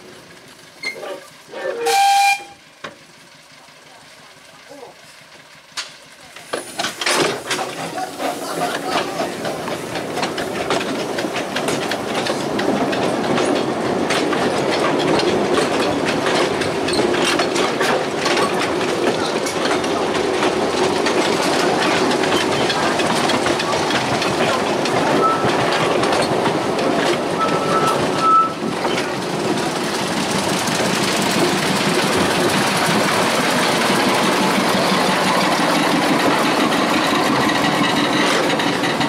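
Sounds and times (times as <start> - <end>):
train rolling rumble: 0.0 - 39.0
wheels clicking over rail joints: 0.0 - 39.0
short high squeal: 0.8 - 2.6.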